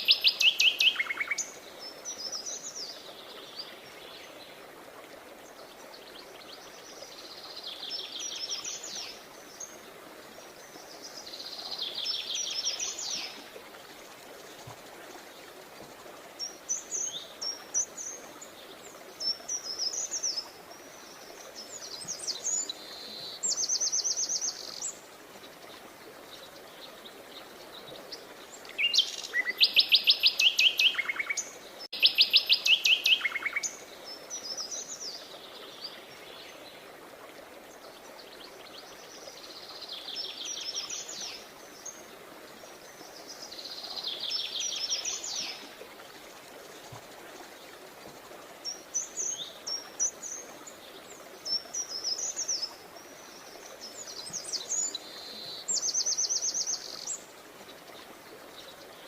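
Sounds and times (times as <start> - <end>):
songbirds trilling and chirping: 0.0 - 59.0.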